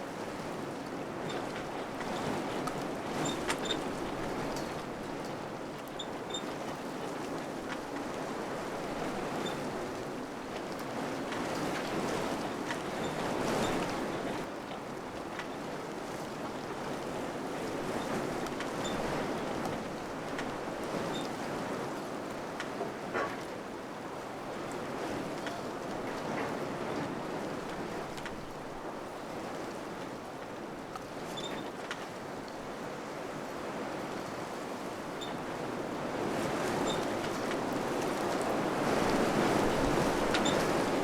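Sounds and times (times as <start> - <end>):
faint light ticks: 19.6 - 20.6, 28.2 - 28.4, 30.4 - 32.1.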